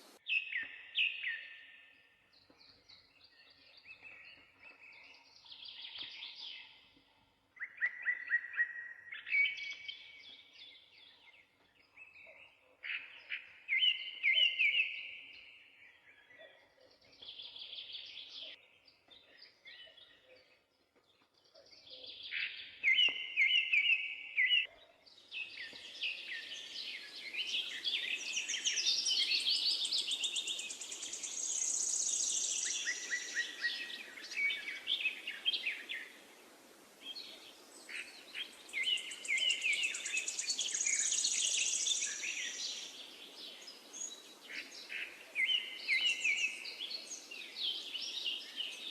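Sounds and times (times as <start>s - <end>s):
background hiss: 0.0s - 0.2s, 25.3s - 48.9s
songbirds singing: 0.0s - 48.9s.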